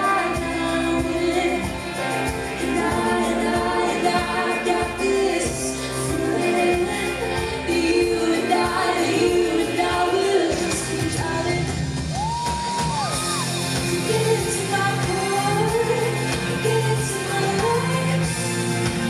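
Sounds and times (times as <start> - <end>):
lead vocal singing: 0.0 - 19.0
live pop band playing: 0.0 - 19.0.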